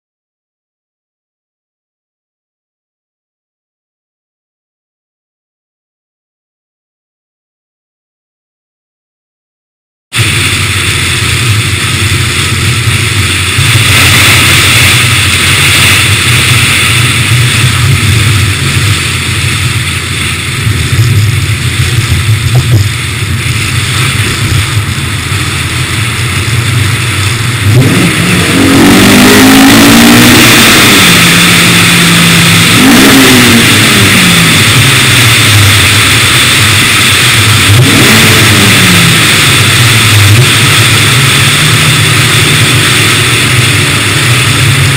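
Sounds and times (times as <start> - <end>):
car engine revving: 10.2 - 44.9.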